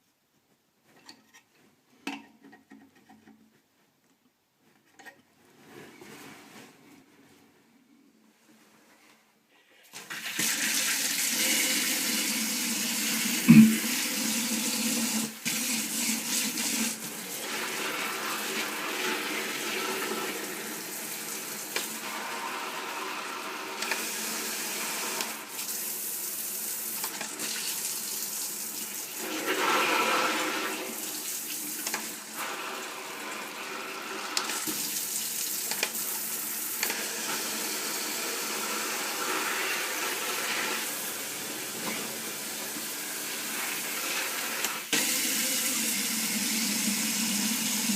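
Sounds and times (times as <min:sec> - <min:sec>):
water running: 0:10.0 - 0:23.0, 0:24.0 - 0:47.9
knock: 0:13.5 - 0:13.9.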